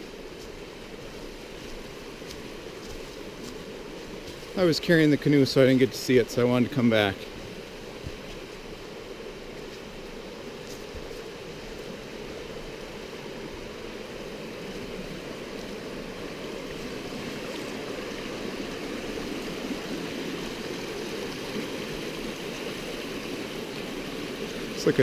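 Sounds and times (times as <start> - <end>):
stream water rushing: 0.0 - 25.0.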